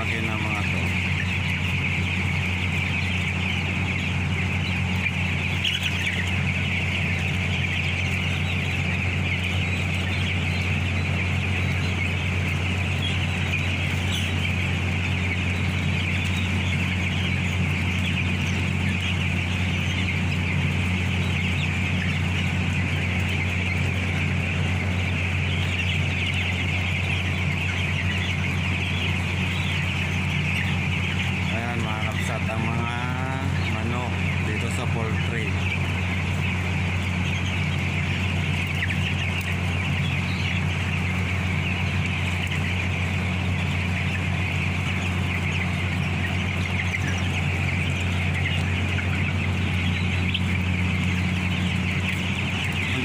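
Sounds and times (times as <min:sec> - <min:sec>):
chickens clucking and chirping: 0:00.0 - 0:53.0.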